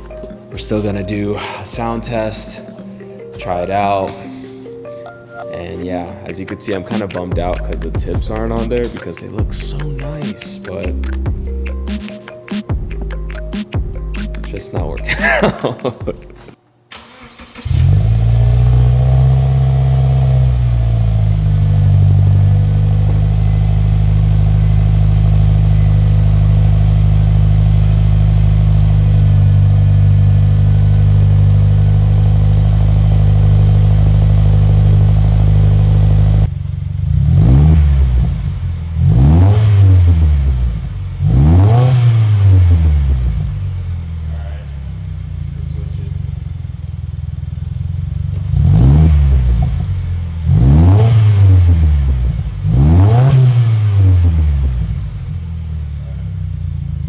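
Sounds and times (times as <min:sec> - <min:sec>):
car engine idling: 0:06.3 - 0:11.9, 0:12.8 - 0:15.5, 0:16.2 - 0:57.0
car engine revving: 0:07.0 - 0:10.2, 0:16.3 - 0:57.0.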